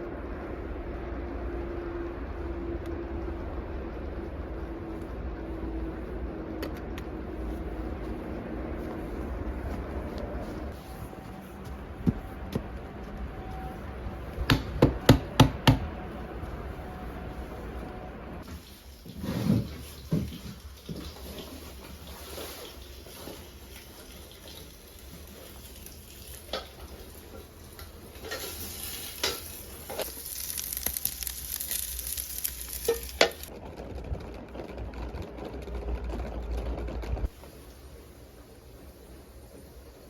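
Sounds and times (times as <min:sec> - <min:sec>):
hiss of water or frying: 0:18.4 - 0:33.5.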